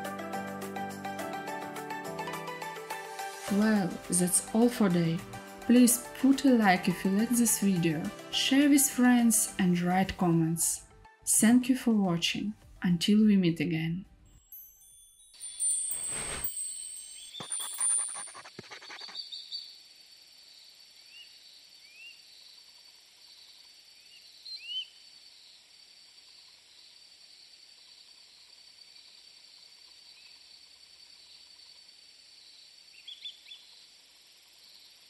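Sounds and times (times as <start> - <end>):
jingling chime: 14.4 - 18.4
faint bird chirps: 17.2 - 25.7, 32.4 - 33.9.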